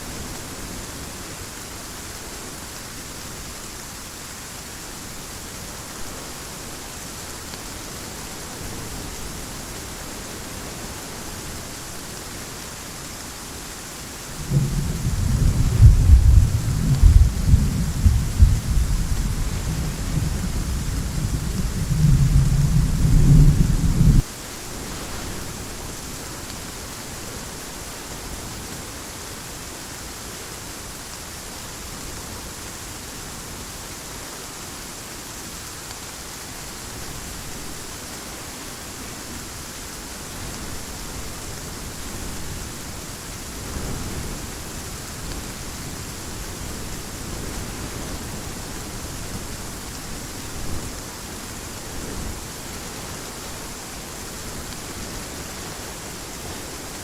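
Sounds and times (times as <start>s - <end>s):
heavy rain hissing: 0.0s - 57.0s
thunder clap: 14.4s - 24.2s.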